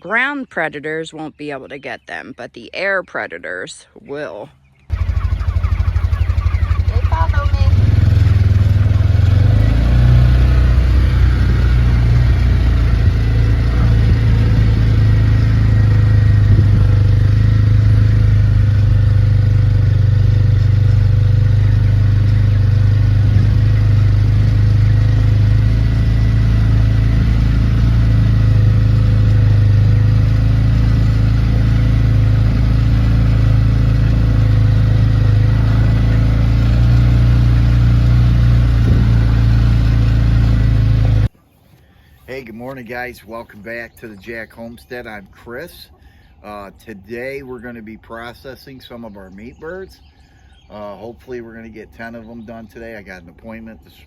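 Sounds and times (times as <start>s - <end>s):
engine-like low rumble: 4.8s - 41.3s.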